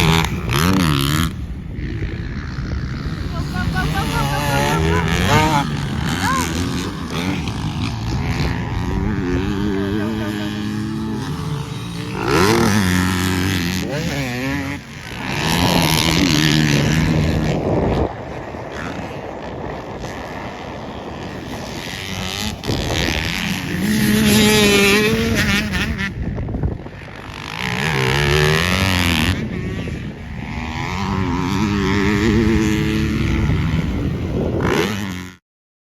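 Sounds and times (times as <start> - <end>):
dirt bike engines revving: 0.0 - 35.4.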